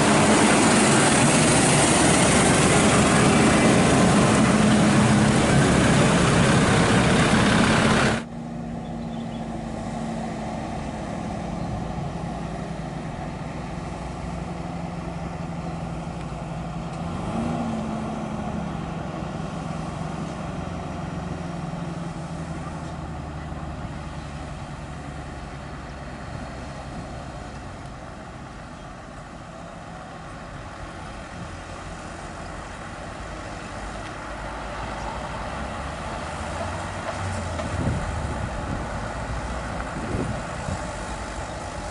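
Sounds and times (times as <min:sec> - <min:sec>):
loud rushing noise: 0:00.0 - 0:08.3
diesel engine running: 0:00.0 - 0:41.9.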